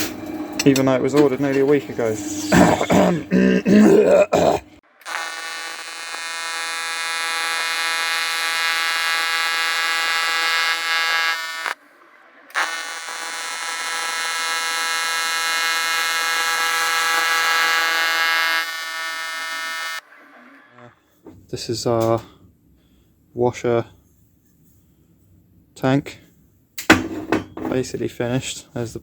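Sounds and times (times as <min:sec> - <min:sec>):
welding arc buzzing: 0:04.9 - 0:11.8, 0:12.5 - 0:21.0.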